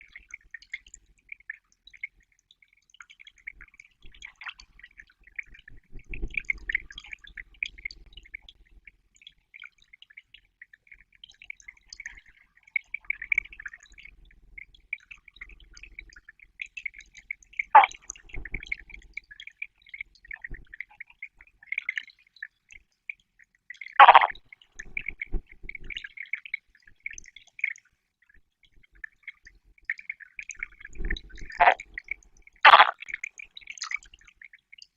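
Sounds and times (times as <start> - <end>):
frogs croaking: 24.0 - 24.4, 31.6 - 31.8, 32.7 - 33.0
loud short frog calls: 24.0 - 24.4, 31.6 - 31.8, 32.7 - 33.0
water disturbance: 24.0 - 24.4, 31.5 - 31.8, 32.7 - 33.0.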